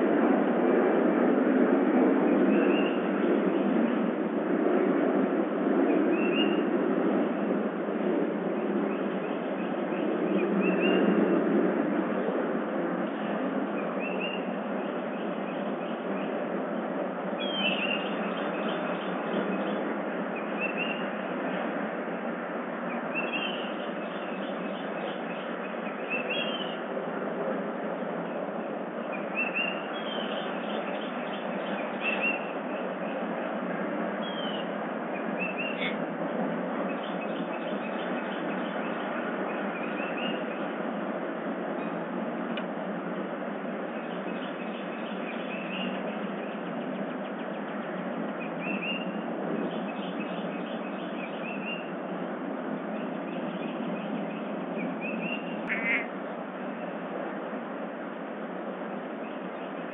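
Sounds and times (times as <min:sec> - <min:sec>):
steady background hiss: 0:00.0 - 0:59.9
small birds chirping: 0:17.4 - 0:21.2, 0:22.9 - 0:26.9, 0:29.0 - 0:33.4, 0:34.2 - 0:36.0, 0:36.9 - 0:40.8, 0:43.9 - 0:52.0.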